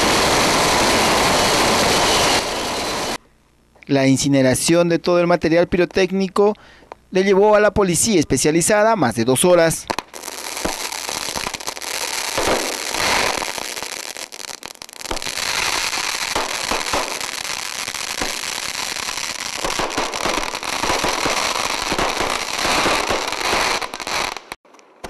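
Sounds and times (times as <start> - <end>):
fireworks crackling and popping: 0.0 - 3.2, 9.7 - 25.0
firecracker bangs: 12.3 - 13.6, 15.1 - 18.6, 19.4 - 24.0.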